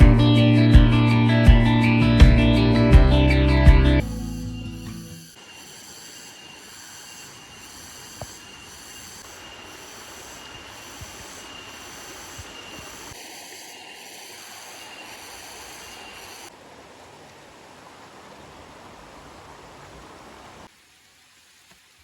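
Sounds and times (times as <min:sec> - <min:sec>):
shrill pulsing sound: 0:03.9 - 0:16.5
steady hiss: 0:04.0 - 0:22.0.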